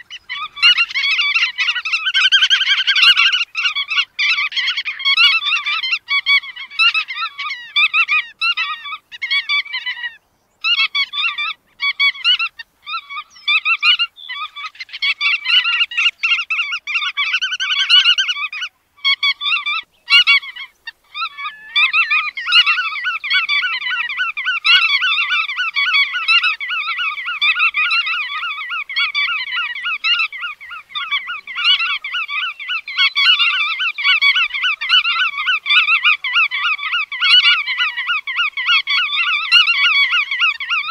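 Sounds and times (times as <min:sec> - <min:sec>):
godwit calling: 0:00.0 - 0:40.9.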